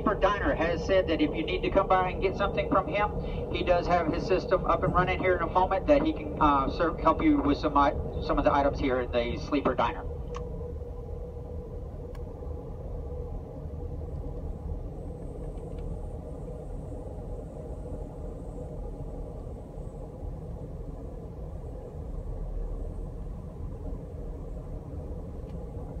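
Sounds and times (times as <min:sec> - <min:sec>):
train wheels rumbling on rails: 0:00.0 - 0:10.4
faint steady hum: 0:00.0 - 0:26.0.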